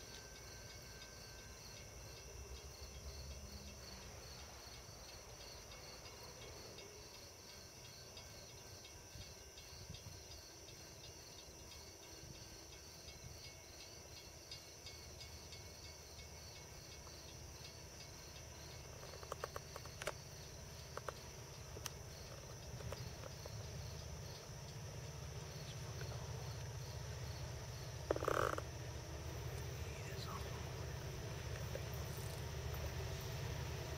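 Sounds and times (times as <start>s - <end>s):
crickets and insects chirping: 0.0s - 33.9s
faint low rumble: 15.5s - 33.9s.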